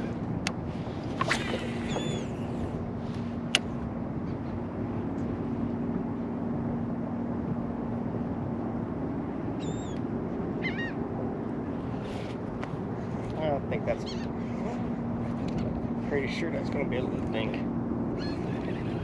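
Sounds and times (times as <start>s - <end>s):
water: 0.0s - 19.0s
wind: 0.0s - 19.0s
seabirds chirping: 1.3s - 2.8s, 9.5s - 10.0s, 10.6s - 11.0s, 13.8s - 14.6s, 18.1s - 19.0s.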